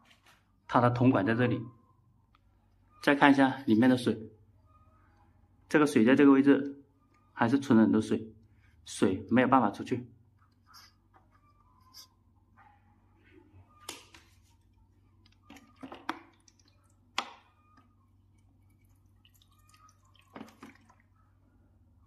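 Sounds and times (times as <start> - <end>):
water dripping into a pan: 15.5 - 17.4, 18.3 - 21.1.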